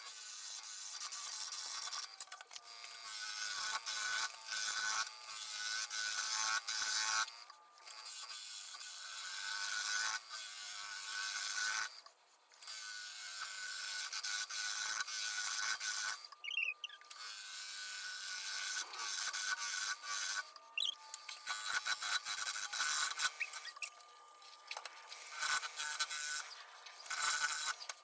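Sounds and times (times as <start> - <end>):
gouge cutting wood on lathe: 12.6 - 28.0.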